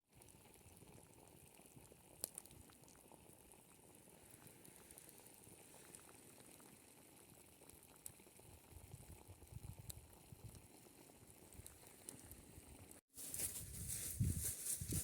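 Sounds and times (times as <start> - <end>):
faint crackling hiss: 0.2 - 8.2.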